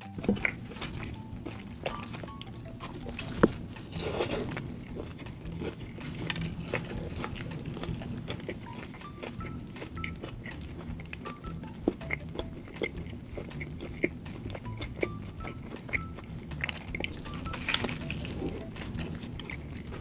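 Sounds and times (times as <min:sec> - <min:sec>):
person chewing food: 0:00.0 - 0:20.0
small mouth clicks: 0:00.0 - 0:20.0
wet mouth smacks: 0:04.2 - 0:20.0.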